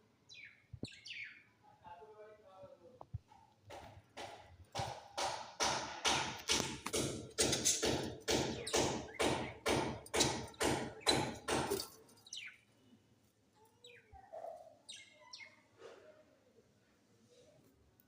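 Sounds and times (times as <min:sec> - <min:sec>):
steady knocking: 0:03.7 - 0:11.8
budgerigars chirping: 0:07.9 - 0:11.5.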